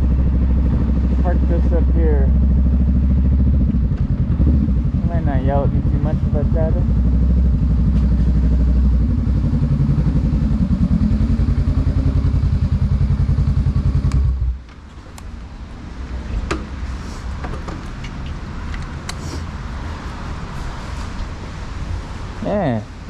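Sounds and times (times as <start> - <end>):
motorcycle engine idling: 0.0 - 14.6.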